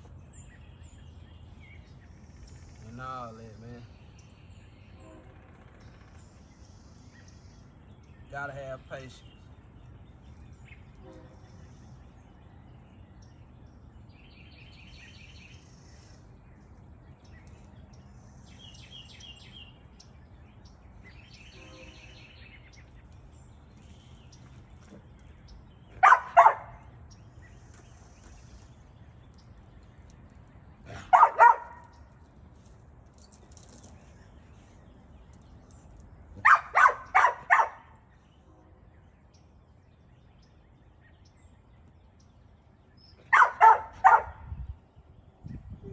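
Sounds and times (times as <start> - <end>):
dog barking: 26.0 - 26.8, 30.9 - 31.8, 36.4 - 37.9, 43.3 - 44.5.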